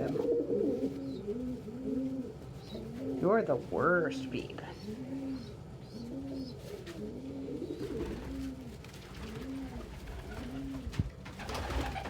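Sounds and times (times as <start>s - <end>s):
pigeon cooing: 0.0s - 3.4s, 4.1s - 12.0s.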